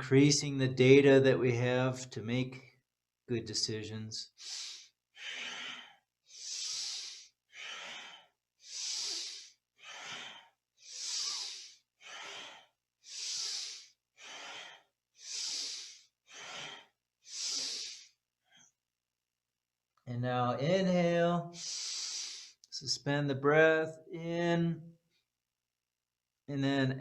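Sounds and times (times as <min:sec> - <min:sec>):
person breathing deeply: 0:04.3 - 0:18.7, 0:21.5 - 0:22.6.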